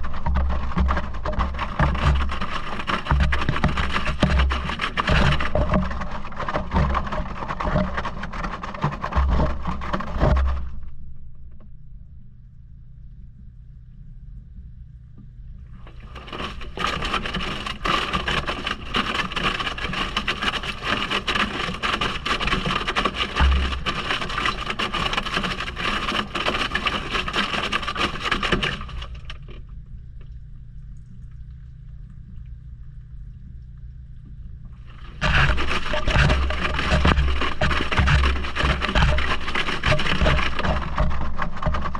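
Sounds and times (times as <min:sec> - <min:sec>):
water sloshing and laundry churning: 0:00.0 - 0:10.9, 0:15.6 - 0:32.5, 0:33.3 - 0:41.9
low motor hum: 0:00.0 - 0:41.9.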